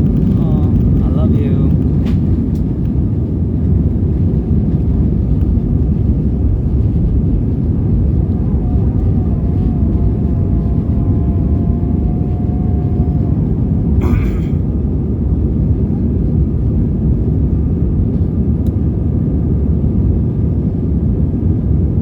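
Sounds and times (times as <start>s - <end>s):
jet engine rumble in cabin: 0.0s - 22.0s
thin whine: 7.0s - 15.2s.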